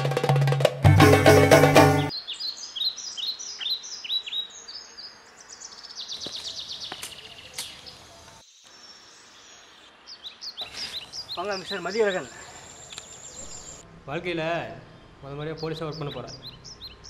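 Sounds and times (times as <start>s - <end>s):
drum-heavy music: 0.0s - 2.1s
bird chirping: 1.7s - 17.0s
outdoor background noise: 2.1s - 17.0s.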